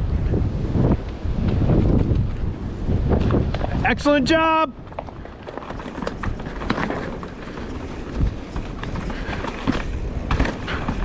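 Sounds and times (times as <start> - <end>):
tyre and wind rush: 0.0 - 11.0
bike knocks and rattles: 4.8 - 11.0.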